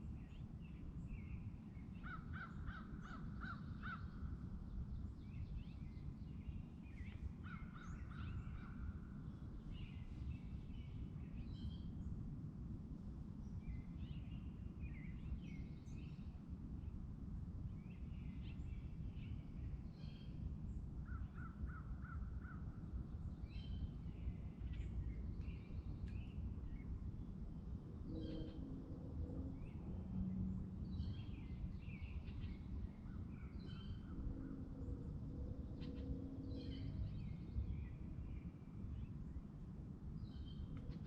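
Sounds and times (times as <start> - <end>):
steady low rumble: 22.7 - 41.0
bird trill: 28.1 - 28.9, 35.6 - 37.4.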